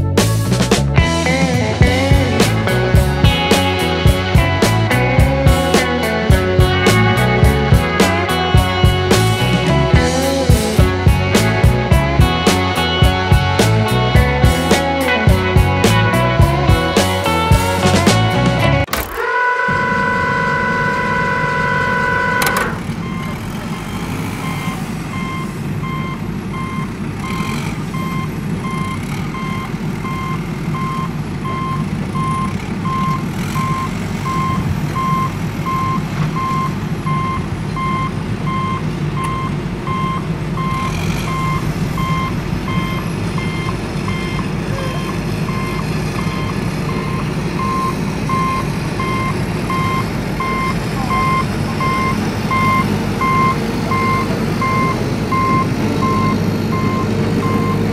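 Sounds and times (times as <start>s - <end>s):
low engine rumble: 0.0s - 57.9s
reversing alarm beeping: 18.9s - 57.9s.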